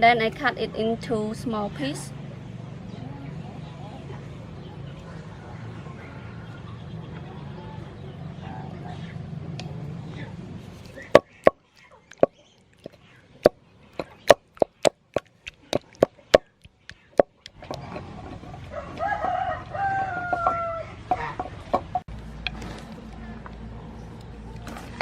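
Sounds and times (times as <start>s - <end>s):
rooster crowing: 18.6s - 21.4s.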